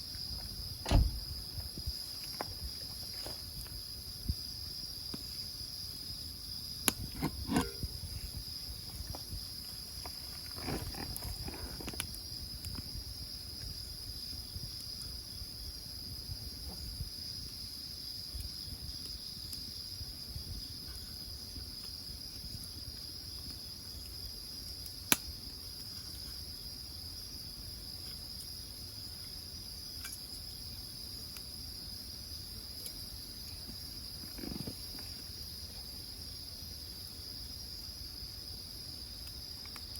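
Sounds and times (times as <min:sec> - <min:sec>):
crickets trilling: 0:00.0 - 0:39.9
wood fire popping: 0:06.5 - 0:15.6, 0:16.6 - 0:26.6.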